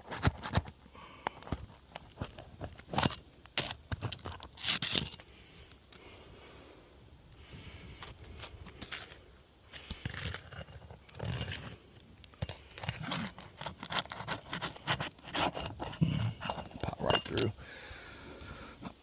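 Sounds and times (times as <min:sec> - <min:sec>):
metal tool scraping shingles: 0:02.8 - 0:05.2, 0:09.8 - 0:17.6.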